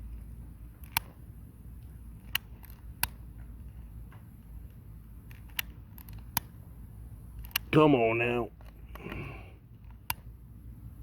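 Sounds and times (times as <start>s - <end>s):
low background rumble: 0.0s - 11.0s
sharp clicks: 0.8s - 1.2s, 2.2s - 3.2s, 4.6s - 6.6s, 7.4s - 7.7s.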